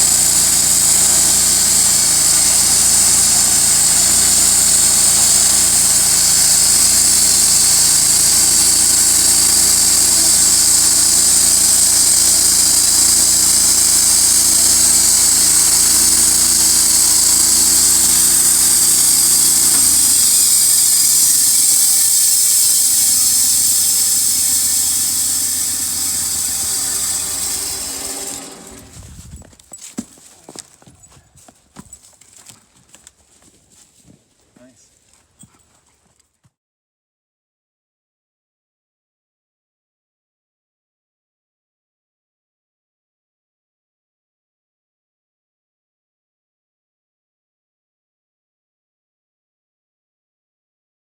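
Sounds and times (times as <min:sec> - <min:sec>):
strong high hiss: 0:00.0 - 0:29.3
sawmill engine running: 0:00.0 - 0:30.8.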